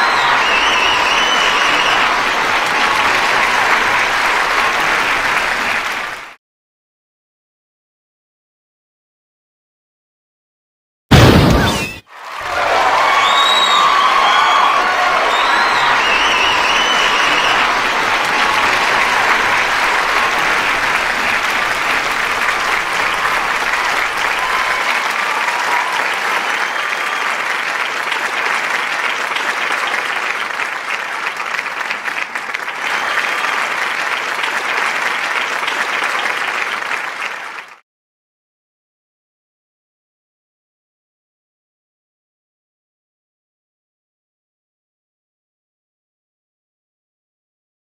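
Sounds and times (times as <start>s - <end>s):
audience applauding: 0.0s - 6.4s, 12.0s - 37.8s
cheers and whistles: 0.0s - 6.4s, 11.4s - 30.7s, 32.4s - 37.5s.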